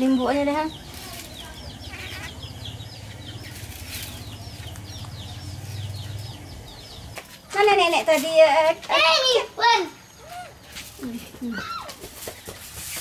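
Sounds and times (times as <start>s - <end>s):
bird chirping rapidly: 0.0s - 8.0s.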